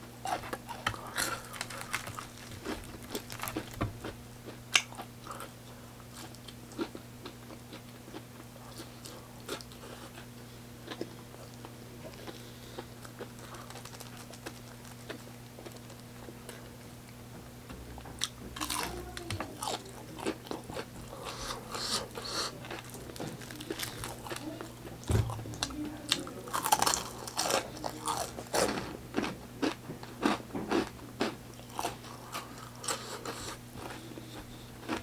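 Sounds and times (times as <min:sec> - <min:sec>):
steady low hum: 0:00.0 - 0:35.0
chewing crisp fried chicken: 0:00.2 - 0:17.2, 0:18.0 - 0:35.0.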